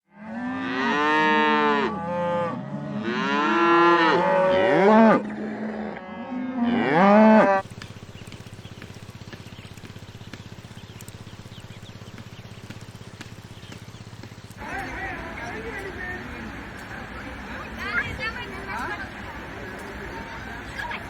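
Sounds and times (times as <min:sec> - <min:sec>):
cow mooing: 0:00.1 - 0:07.6
steady low hum: 0:07.6 - 0:21.0.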